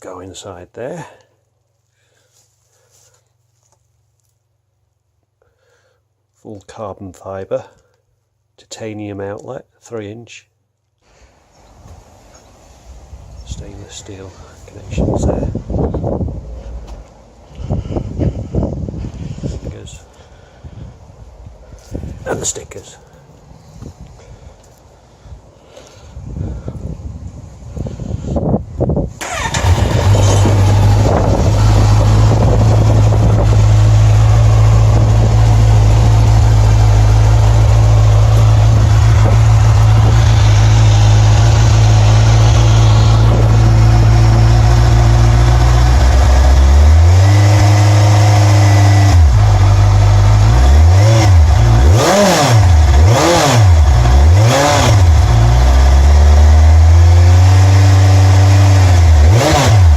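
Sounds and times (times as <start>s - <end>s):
motorcycle engine starting: 29.1s - 59.9s
motorcycle engine idling: 29.2s - 50.8s.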